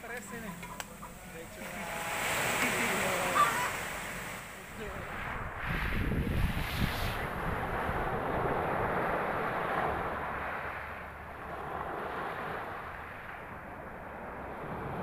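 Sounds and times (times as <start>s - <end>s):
sea waves washing ashore: 0.0s - 15.0s
wind buffeting microphone: 0.5s - 15.0s.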